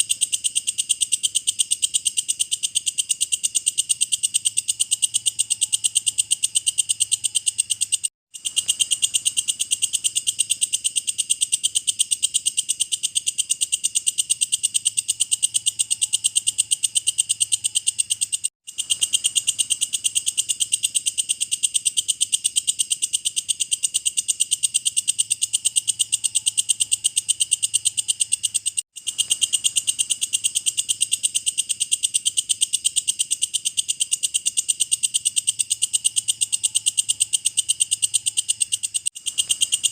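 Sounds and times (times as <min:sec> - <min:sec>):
grasshopper clicking chirps: 0:00.0 - 0:39.9.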